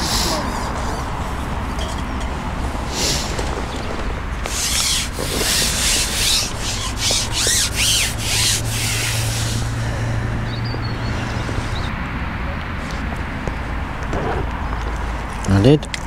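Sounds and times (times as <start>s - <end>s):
rubbing scraping strokes: 4.4s - 10.2s.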